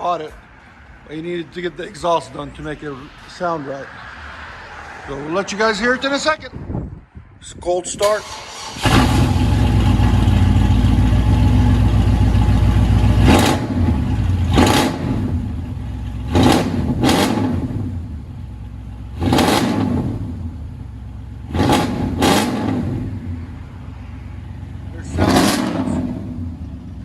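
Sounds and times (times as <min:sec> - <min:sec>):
truck engine idling: 0:08.3 - 0:17.0, 0:20.2 - 0:27.0
engine revving in short blips: 0:21.5 - 0:23.4, 0:25.1 - 0:26.7.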